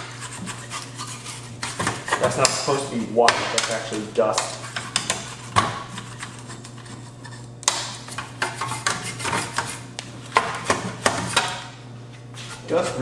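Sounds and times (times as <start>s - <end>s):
brush scrubbing metal: 0.0s - 2.4s, 12.4s - 13.0s
steady low hum: 0.0s - 13.0s.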